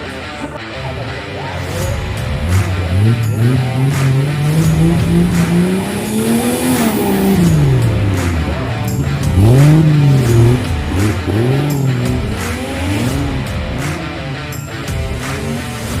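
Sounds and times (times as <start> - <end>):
off-road engine revving: 0.9 - 16.0.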